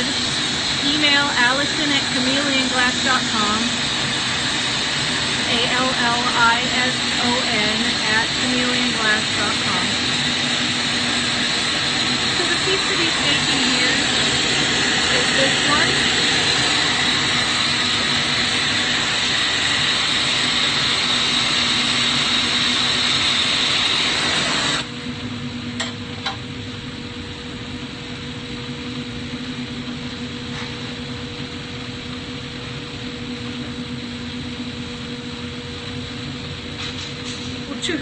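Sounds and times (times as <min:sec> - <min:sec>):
torch flame hissing: 0:00.0 - 0:25.0
low hum: 0:00.0 - 0:38.0.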